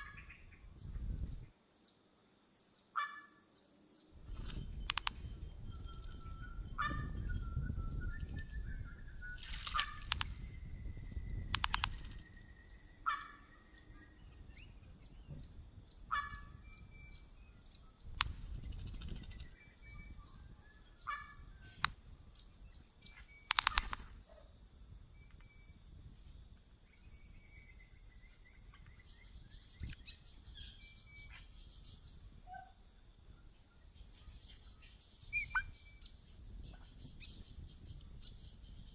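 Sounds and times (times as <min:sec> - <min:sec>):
high quick bird chirps: 0:04.3 - 0:13.5, 0:23.1 - 0:24.5, 0:35.2 - 0:36.0
loud harsh bird calls: 0:04.8 - 0:07.3, 0:09.4 - 0:15.0, 0:15.9 - 0:17.2, 0:17.9 - 0:22.2, 0:23.3 - 0:24.7, 0:35.2 - 0:36.1
fast trilled bird notes: 0:35.3 - 0:35.9.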